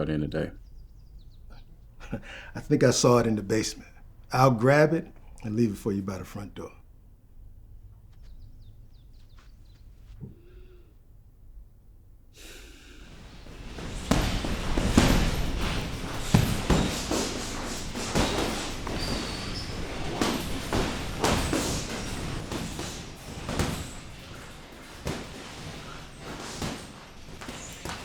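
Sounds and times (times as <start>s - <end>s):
irregular thuds and slams: 12.9s - 28.0s.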